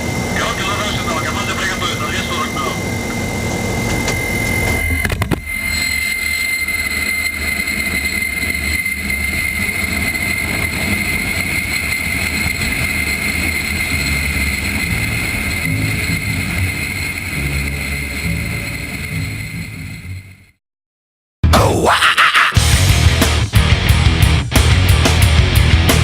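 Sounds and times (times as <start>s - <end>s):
aircraft engine drone in cabin: 0.0s - 20.2s.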